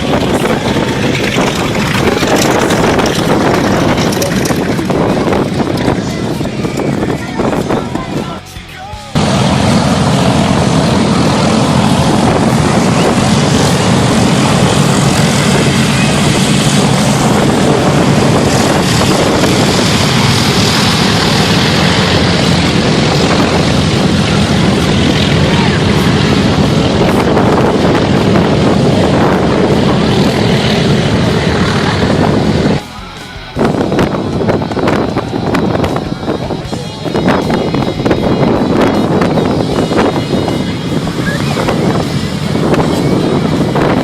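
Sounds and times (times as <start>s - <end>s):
aircraft engine rumbling: 0.0s - 44.0s.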